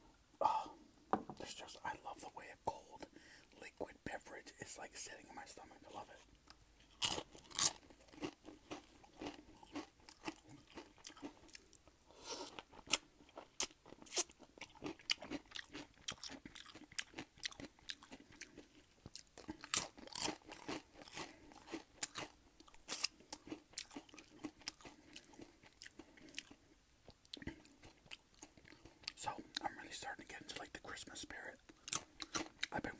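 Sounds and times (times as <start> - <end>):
person chewing crunchy food: 5.9 - 29.7, 31.5 - 32.9.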